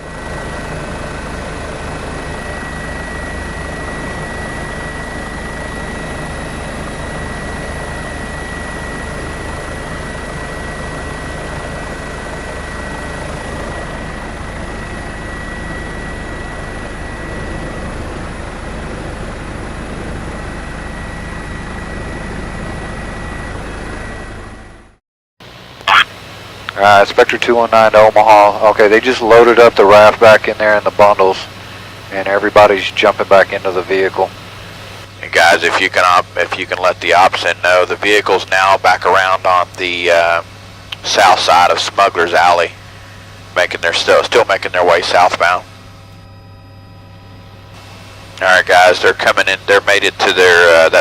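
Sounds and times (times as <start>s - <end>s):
thin high whine: 0.0s - 24.9s, 25.6s - 51.0s
helicopter engine and rotor drone: 0.0s - 51.0s.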